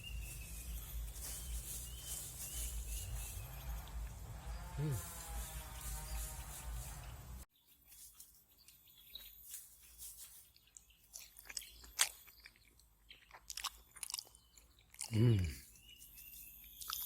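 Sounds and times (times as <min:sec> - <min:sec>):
person chewing food: 0:11.1 - 0:15.6.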